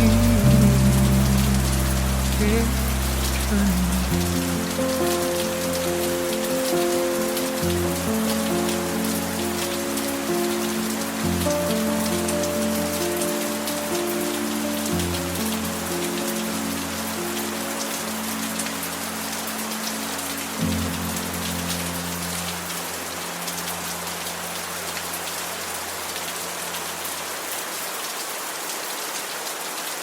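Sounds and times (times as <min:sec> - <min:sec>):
instrumental song ending: 0:00.0 - 0:16.7
steady rain falling: 0:00.0 - 0:30.0.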